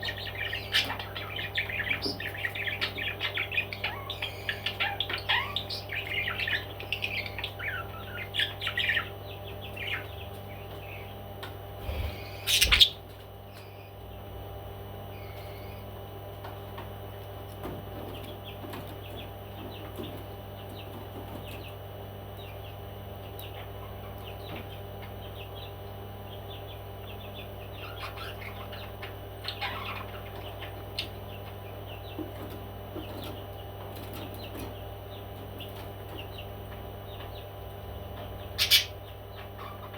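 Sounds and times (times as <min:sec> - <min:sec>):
parrots chirping and tweeting: 0:00.0 - 0:14.4, 0:15.1 - 0:15.9, 0:16.5 - 0:39.9
steady low hum: 0:00.0 - 0:39.9.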